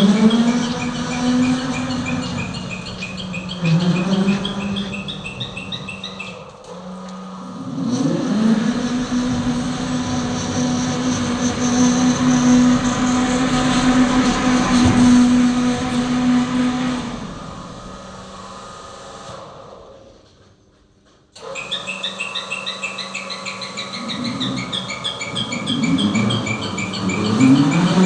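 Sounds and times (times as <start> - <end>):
electric motor whining: 0.0 - 19.7.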